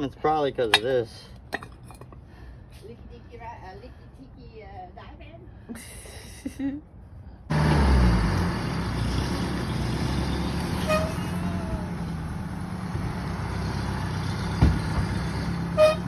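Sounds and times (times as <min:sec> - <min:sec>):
diesel bus engine idling: 0:07.5 - 0:16.0.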